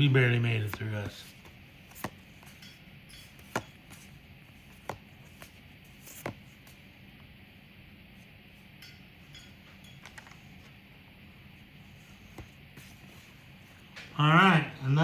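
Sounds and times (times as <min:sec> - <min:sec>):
trading cards handling noise: 0:00.4 - 0:07.0.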